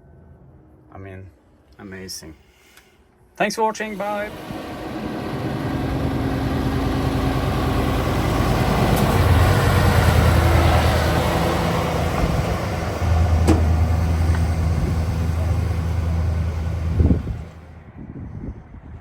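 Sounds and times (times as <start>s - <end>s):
diesel engine running: 3.8s - 17.8s.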